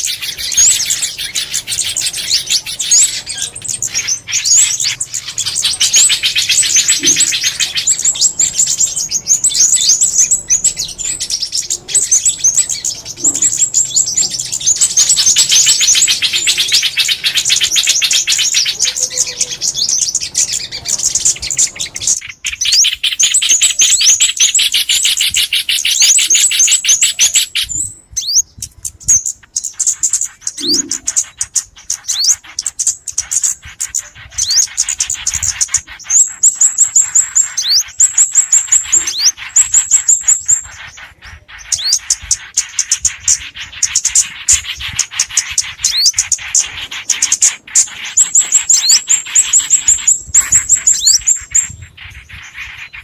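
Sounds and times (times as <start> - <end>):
songbirds chirping: 0.0 - 53.0.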